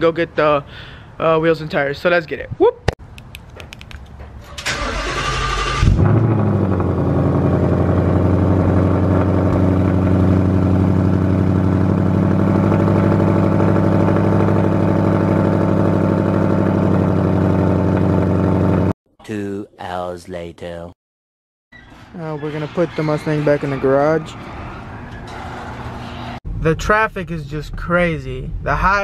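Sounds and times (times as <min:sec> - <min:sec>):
car engine starting and idling: 0:04.2 - 0:18.9.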